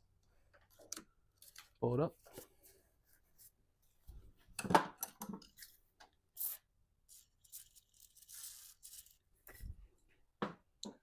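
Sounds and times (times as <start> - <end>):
hose fittings clicking and scraping: 0.5 - 1.8.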